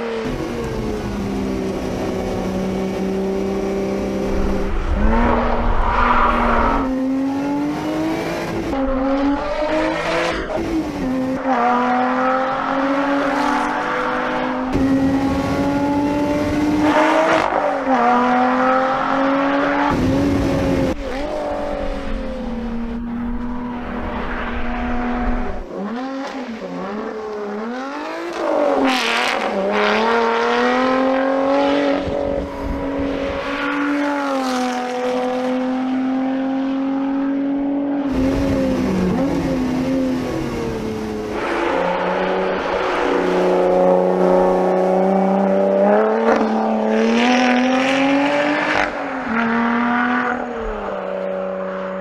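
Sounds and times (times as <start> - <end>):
car engine revving hard: 33.9 - 50.8.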